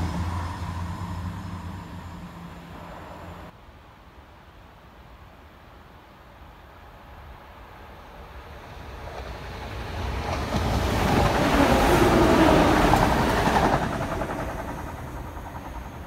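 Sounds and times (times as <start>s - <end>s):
train wheels rumbling on rails: 0.0s - 3.5s, 8.4s - 16.0s.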